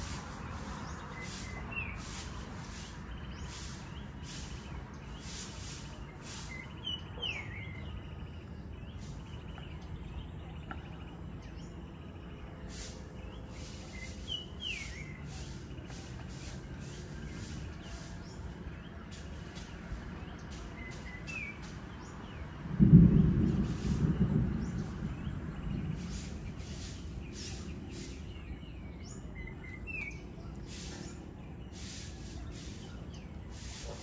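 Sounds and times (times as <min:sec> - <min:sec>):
steady low rumble: 0:07.9 - 0:33.7.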